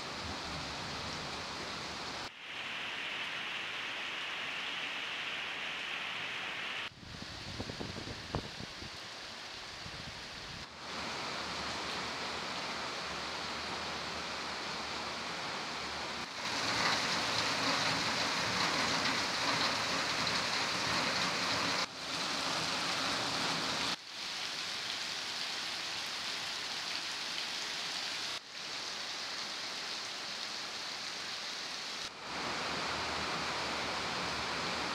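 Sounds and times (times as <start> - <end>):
heavy rain pouring: 10.6 - 34.9.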